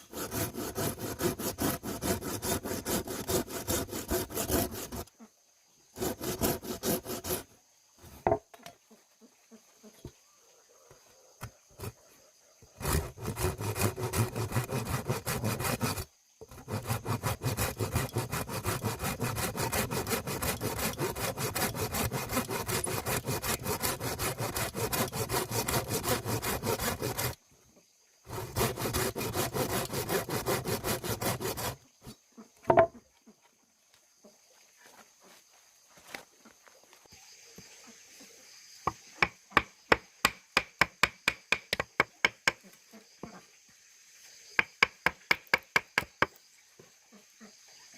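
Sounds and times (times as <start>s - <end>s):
wood being sawn: 0.0s - 5.1s, 6.0s - 7.5s, 11.8s - 12.0s, 12.8s - 27.4s, 28.3s - 31.8s.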